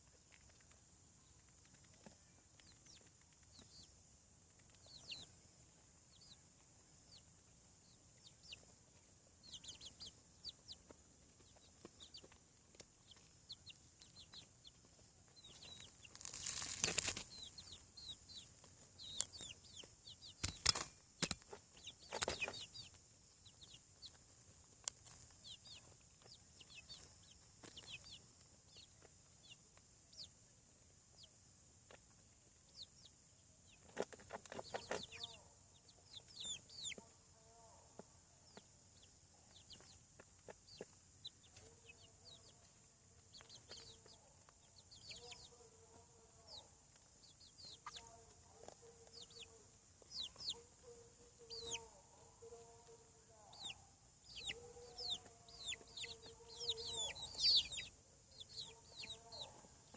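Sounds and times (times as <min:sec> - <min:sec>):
chicks peeping: 0:00.0 - 0:59.9.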